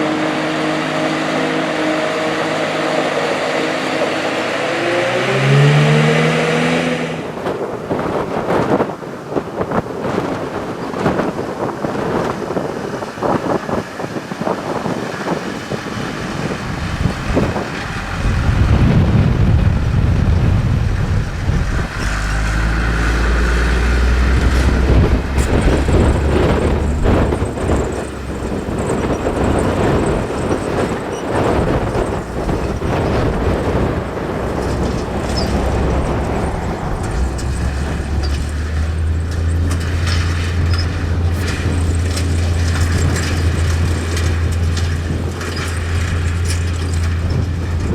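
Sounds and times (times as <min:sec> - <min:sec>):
deep engine drone: 0:00.0 - 0:08.2, 0:15.4 - 0:47.9
machinery knocks and clatter: 0:15.2 - 0:47.9.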